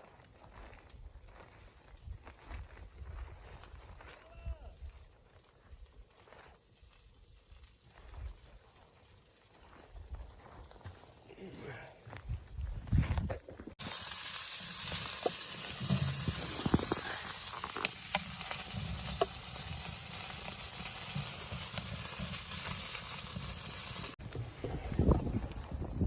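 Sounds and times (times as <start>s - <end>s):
pops and crackles: 13.3s - 26.0s
food sizzling in a pan: 13.8s - 24.2s.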